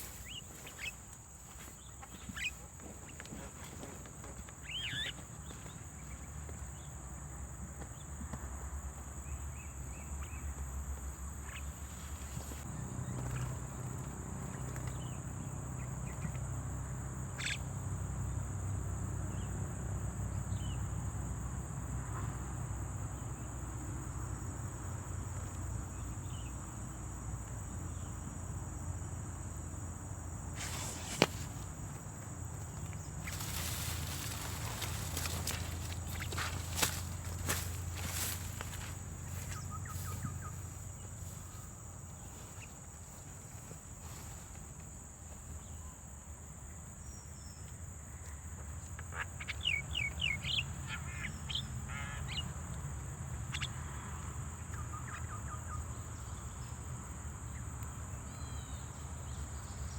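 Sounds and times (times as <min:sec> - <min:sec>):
high-pitched insect drone: 0:33.2 - 0:41.7.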